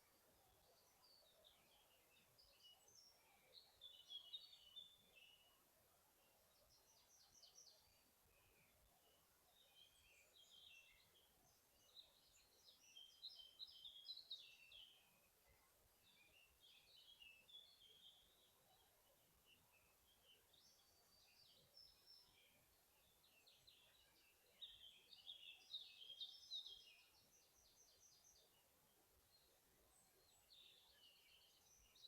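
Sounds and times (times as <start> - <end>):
soft steady hiss: 0.0 - 32.0
songbirds twittering: 0.0 - 32.0.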